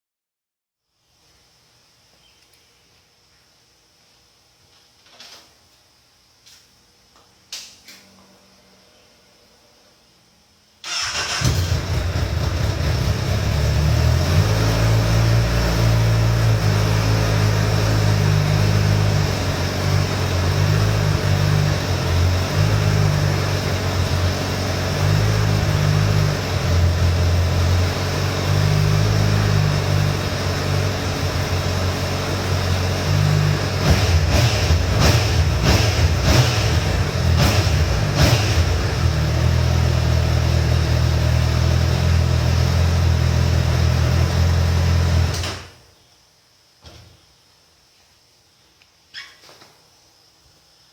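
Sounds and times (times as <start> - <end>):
motorcycle engine starting and idling: 10.8 - 45.8.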